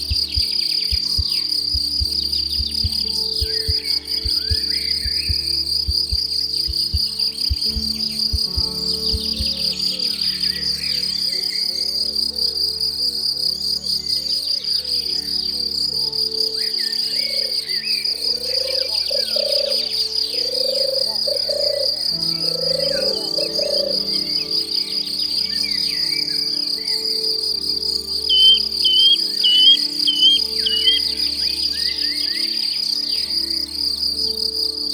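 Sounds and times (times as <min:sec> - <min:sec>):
bird chirps: 0:00.0 - 0:11.9, 0:28.1 - 0:33.4
insect trilling: 0:00.0 - 0:34.9
soft background music: 0:00.0 - 0:34.9.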